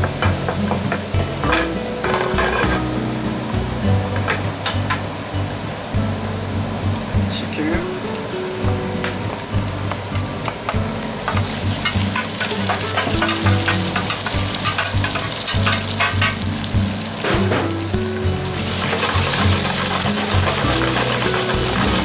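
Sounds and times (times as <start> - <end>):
background music: 0.0 - 22.0
food sizzling in hot oil: 0.0 - 22.0.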